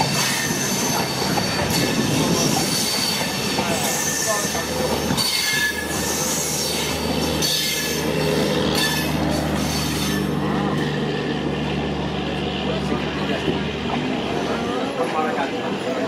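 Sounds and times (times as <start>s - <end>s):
high wheel squeal: 0.0s - 11.2s
train wheels on rails: 0.0s - 16.0s.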